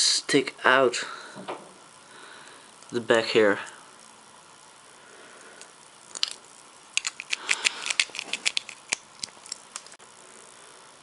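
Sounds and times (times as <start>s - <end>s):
plastic bricks clicking: 7.0s - 10.0s.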